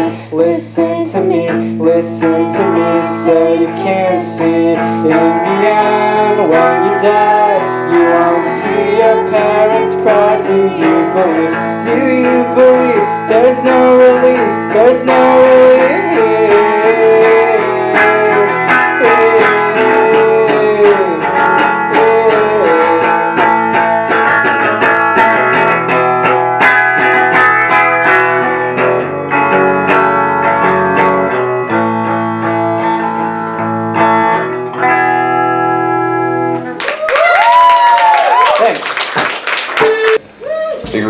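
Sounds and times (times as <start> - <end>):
live rock band playing: 4.8 - 36.8
audience clapping and cheering: 36.6 - 40.2.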